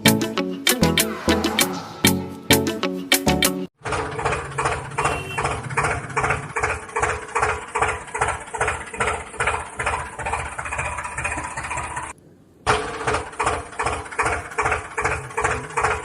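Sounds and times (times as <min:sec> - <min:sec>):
small tractor engine chugging: 0:03.8 - 0:16.0.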